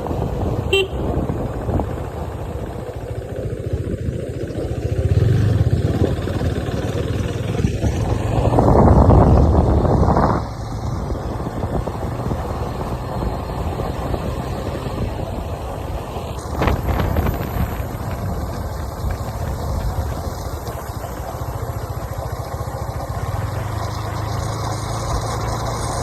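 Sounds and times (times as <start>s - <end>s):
vehicle engine and road noise: 0.0s - 26.0s.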